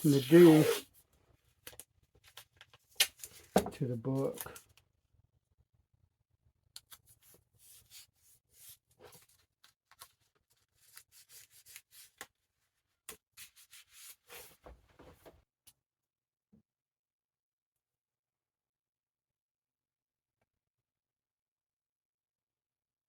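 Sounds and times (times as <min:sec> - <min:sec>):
hands rustling tape and paper: 0:06.9 - 0:12.4.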